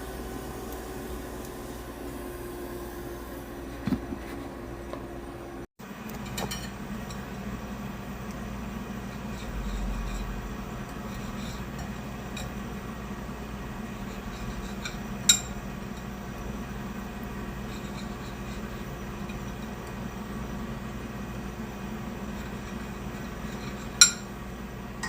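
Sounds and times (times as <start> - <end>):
room hum: 0.0 - 25.0
clink on dishware: 24.0 - 24.3.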